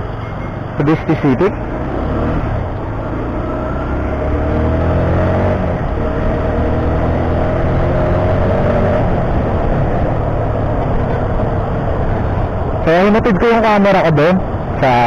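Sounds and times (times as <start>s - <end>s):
low wind rumble: 0.0s - 15.0s
motorcycle engine revving: 1.2s - 12.6s.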